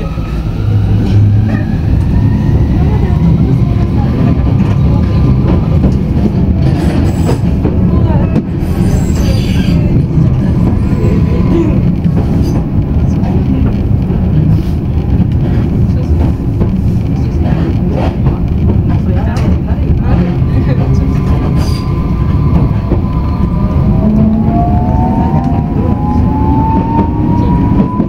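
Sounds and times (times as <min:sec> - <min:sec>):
rumble of train wheels: 0:00.0 - 0:28.0.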